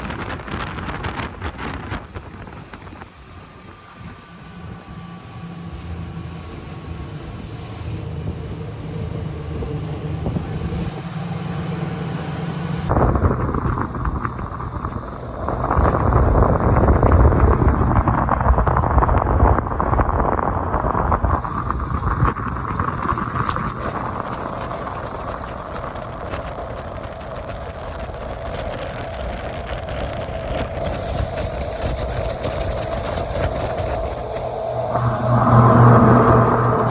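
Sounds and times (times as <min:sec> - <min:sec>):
wind rushing over microphone: 0:00.0 - 0:08.6, 0:30.2 - 0:36.9
engine running: 0:00.0 - 0:17.5, 0:30.7 - 0:36.9.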